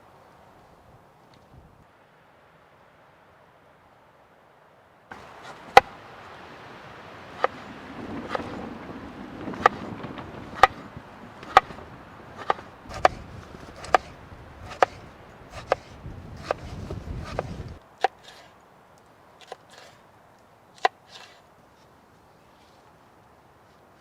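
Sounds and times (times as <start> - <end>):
sharp chopping knocks: 5.2 - 5.9, 7.4 - 8.6, 9.5 - 9.9, 10.5 - 18.4.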